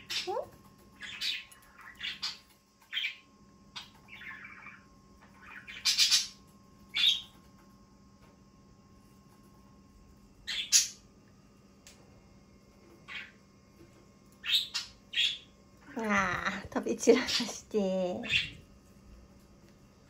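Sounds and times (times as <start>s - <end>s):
parrot chirping and squawking: 0.0s - 7.4s, 10.4s - 11.0s, 13.0s - 13.4s, 14.4s - 15.5s, 18.2s - 18.6s.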